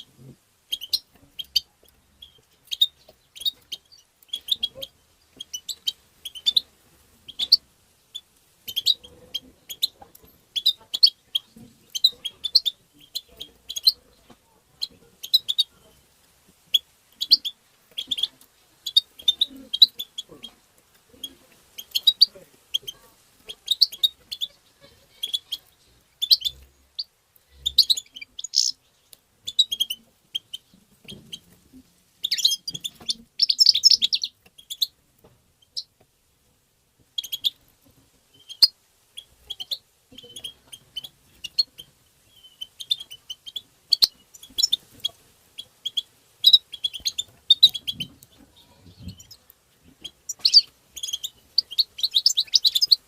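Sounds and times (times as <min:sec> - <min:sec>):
goldfinch twittering: 0:25.2 - 0:28.8, 0:32.2 - 0:34.9, 0:38.4 - 0:48.2, 0:49.0 - 0:53.0.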